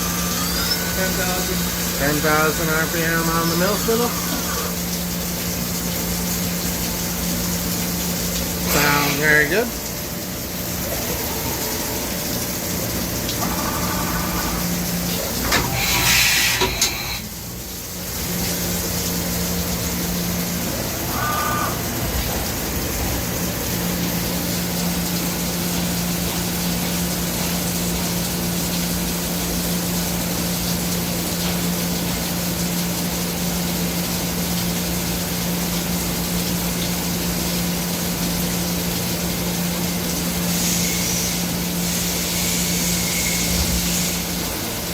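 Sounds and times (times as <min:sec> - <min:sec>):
milling spindle whirring: 0:00.0 - 0:04.7.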